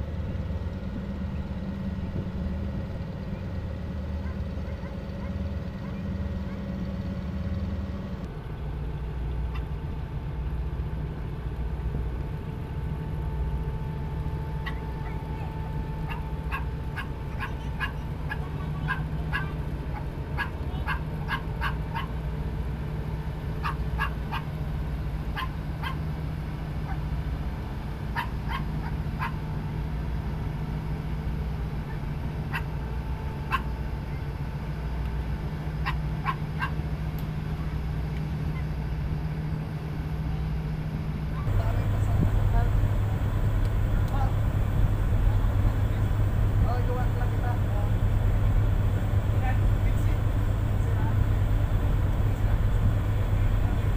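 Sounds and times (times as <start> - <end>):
boat engine drone: 0.0 - 53.9.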